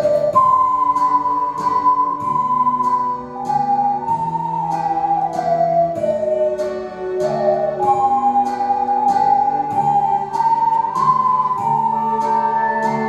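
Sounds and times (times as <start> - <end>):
ocarinas playing slow melody: 0.0 - 13.0
steady beat accompaniment: 0.0 - 13.0.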